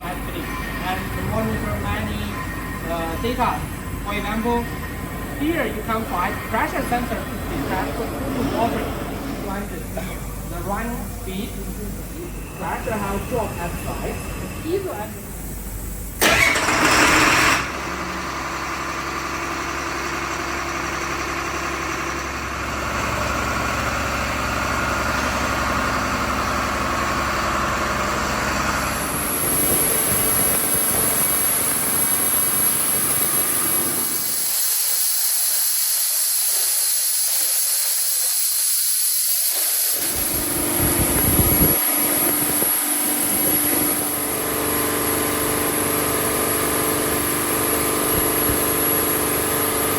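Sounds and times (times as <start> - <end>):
pump machine noise: 15.5 - 49.9
hiss: 29.3 - 44.2.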